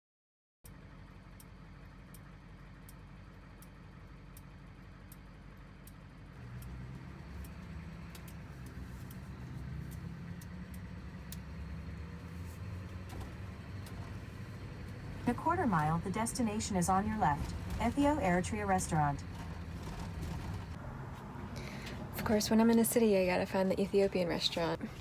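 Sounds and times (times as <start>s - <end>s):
engine and road rumble: 0.6s - 25.0s
light regular ticks: 0.7s - 13.0s.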